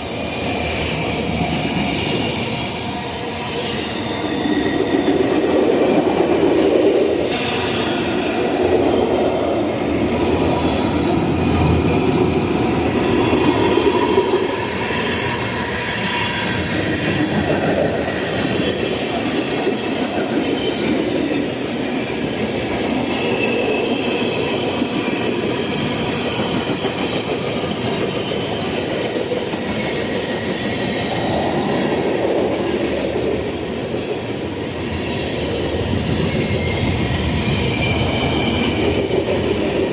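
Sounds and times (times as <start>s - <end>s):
train wheels rumbling on rail: 0.0s - 39.9s
high wheel squeal: 0.2s - 5.6s, 18.2s - 39.8s.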